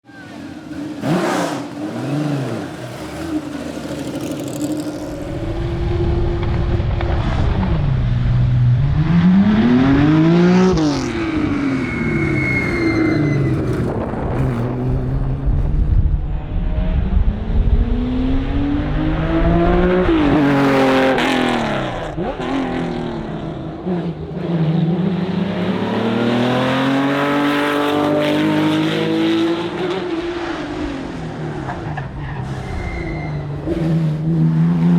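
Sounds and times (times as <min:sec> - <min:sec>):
race car engine revving through gears: 0:00.2 - 0:34.9.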